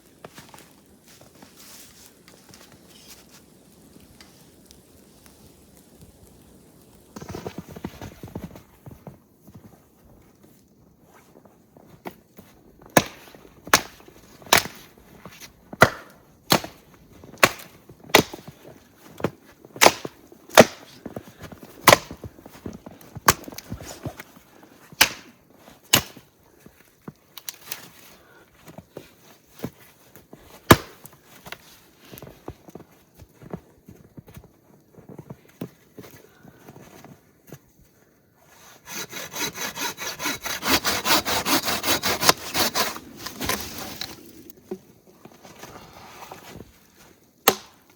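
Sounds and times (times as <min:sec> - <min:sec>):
firewood being chopped: 0:12.9 - 0:15.0, 0:15.7 - 0:24.3, 0:25.0 - 0:26.3, 0:30.6 - 0:31.2, 0:39.0 - 0:45.4, 0:47.4 - 0:47.9.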